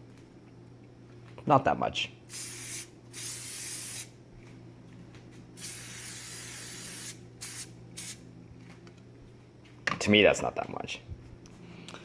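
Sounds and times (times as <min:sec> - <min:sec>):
cooking oil spray hissing: 0:02.3 - 0:04.1, 0:05.6 - 0:08.2.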